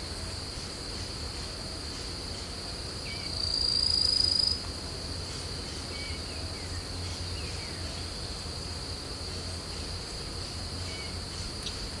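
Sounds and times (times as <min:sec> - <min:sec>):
low steady hum: 0:00.0 - 0:12.0
high-pitched insect drone: 0:01.9 - 0:04.6.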